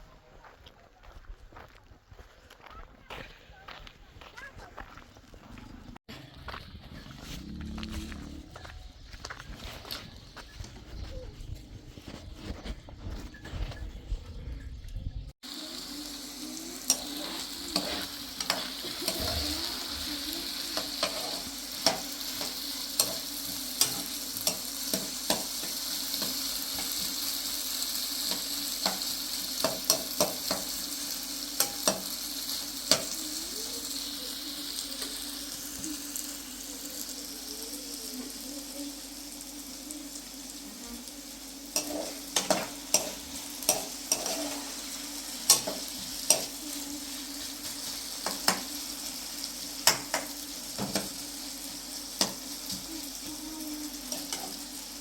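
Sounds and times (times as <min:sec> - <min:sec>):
food sizzling in a pan: 0:15.4 - 0:55.0.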